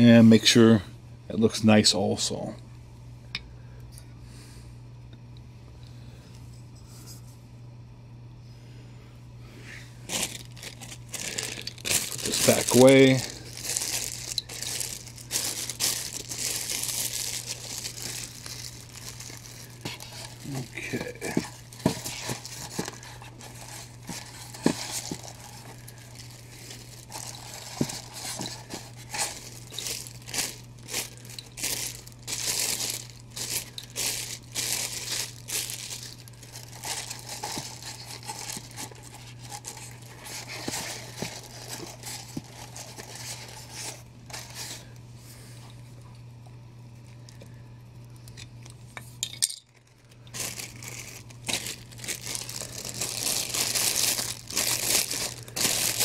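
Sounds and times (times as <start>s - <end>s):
steady low hum: 0.0s - 56.0s
plastic packaging crinkling: 10.0s - 45.0s, 49.5s - 56.0s.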